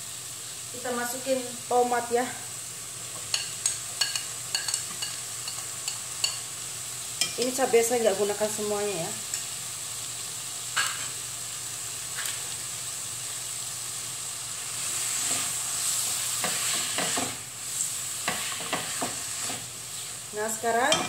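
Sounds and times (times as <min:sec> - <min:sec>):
food sizzling in a wok: 0:00.0 - 0:21.0
spatula scraping a pan: 0:14.8 - 0:20.2.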